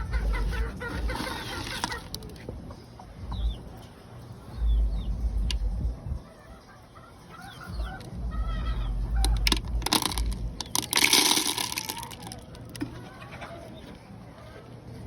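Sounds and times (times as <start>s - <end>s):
game fowl clucking and chirping: 0.0s - 3.6s, 6.2s - 9.5s, 12.9s - 14.0s
low rumble: 4.6s - 6.2s, 7.7s - 10.8s.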